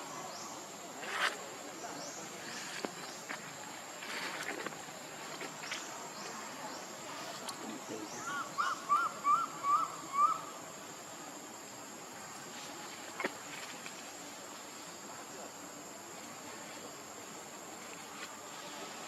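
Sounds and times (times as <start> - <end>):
faint outdoor background: 0.0 - 19.0.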